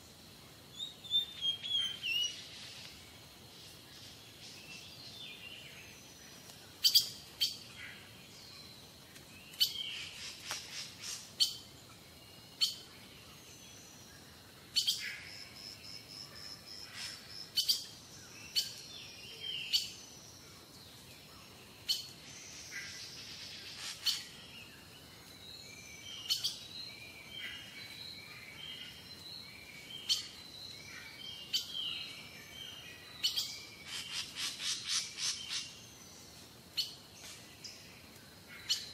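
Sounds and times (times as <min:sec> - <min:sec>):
birds chirping: 0:16.7 - 0:38.9.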